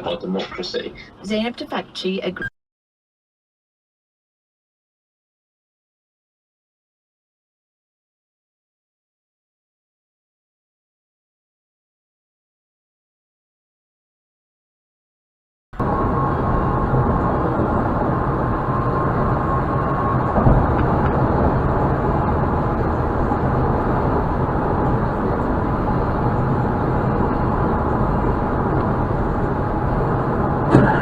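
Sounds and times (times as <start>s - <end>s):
car road and engine noise: 0.0s - 2.4s, 15.8s - 31.0s.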